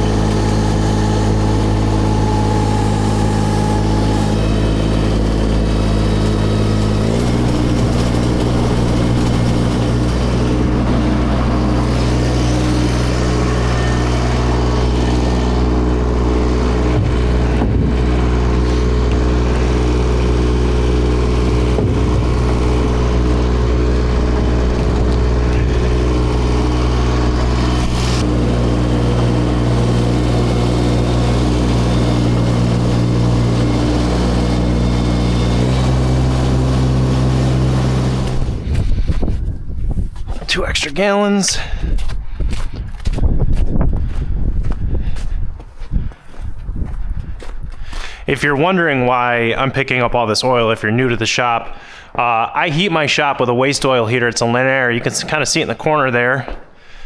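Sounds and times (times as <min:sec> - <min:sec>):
vehicle engine revving: 0:00.0 - 0:39.4.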